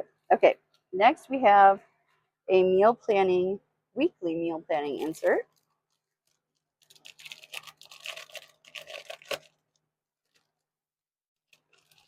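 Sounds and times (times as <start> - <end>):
paper rustling: 5.0 - 10.6, 11.5 - 12.0.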